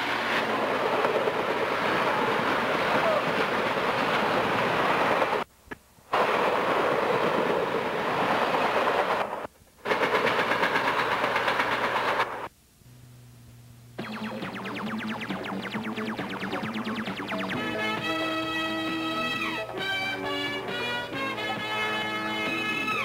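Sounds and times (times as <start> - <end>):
train wheels clattering over rail joints: 6.2 - 12.5.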